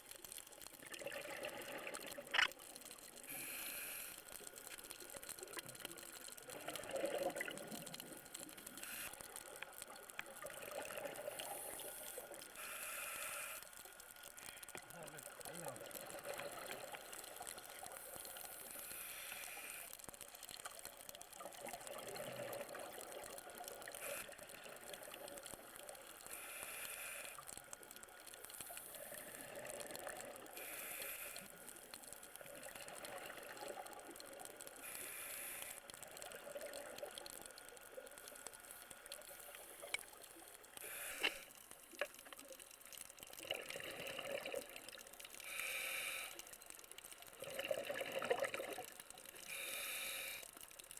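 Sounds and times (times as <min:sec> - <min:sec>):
exhaled bubbles underwater: 0:00.8 - 0:02.4, 0:06.4 - 0:08.3, 0:43.3 - 0:45.1, 0:47.4 - 0:49.0
faint regulator hiss: 0:01.6 - 0:43.3, 0:45.2 - 0:48.0, 0:49.0 - 0:50.9.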